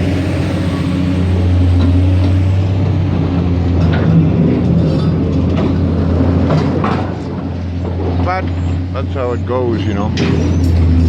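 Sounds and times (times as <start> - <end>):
heavy diesel engine running: 0.0 - 11.0
knocks and clanks: 1.7 - 9.0, 10.0 - 11.0.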